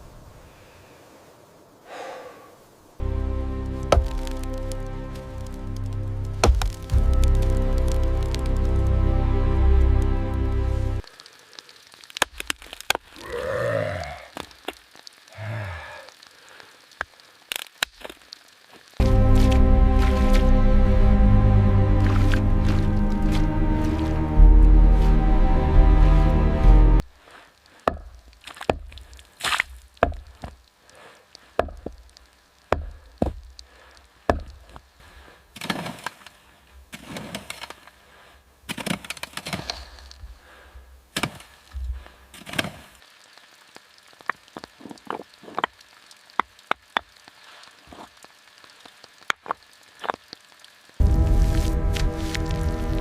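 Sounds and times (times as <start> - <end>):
wood being chopped by hand: 3.9 - 4.4, 6.4 - 7.0, 27.8 - 30.6, 31.6 - 32.0, 32.7 - 33.5, 34.3 - 34.6, 38.7 - 39.8, 41.2 - 41.5.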